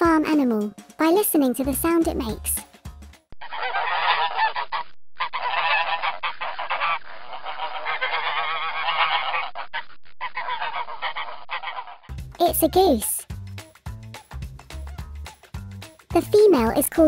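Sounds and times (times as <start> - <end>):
geese honking: 3.5 - 9.6, 10.3 - 12.0.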